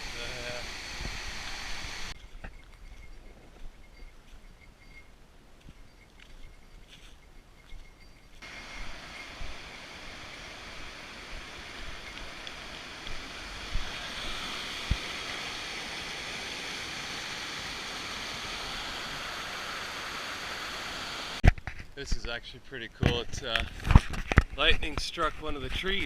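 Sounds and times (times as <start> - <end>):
creek water rushing: 0.0 - 2.2, 8.4 - 21.4.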